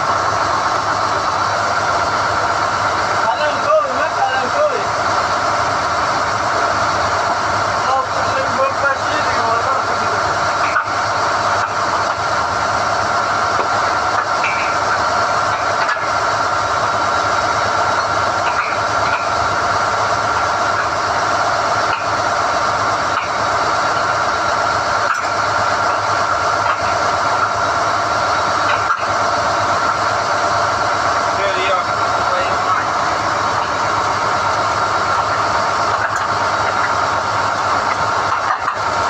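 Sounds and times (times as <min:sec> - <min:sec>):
drilling rig power unit whine: 0:00.0 - 0:39.0.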